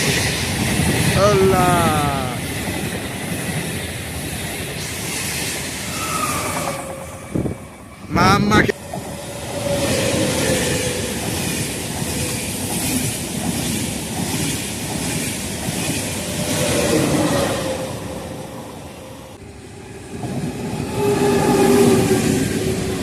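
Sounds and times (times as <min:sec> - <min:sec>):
high-speed train passing: 0:00.0 - 0:23.0
regional train approaching: 0:00.0 - 0:23.0
wheels clattering on rails: 0:08.8 - 0:17.0.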